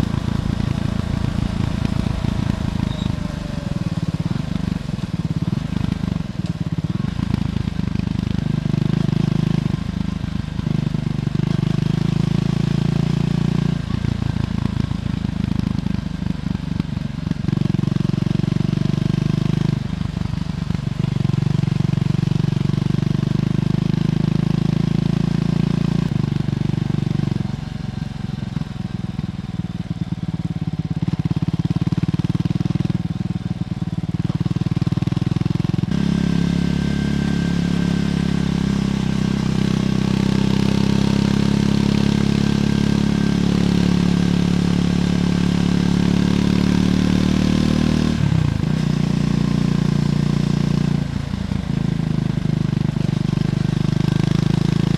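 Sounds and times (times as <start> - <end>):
motorcycle engine revving: 0.0 - 15.2, 30.4 - 54.9.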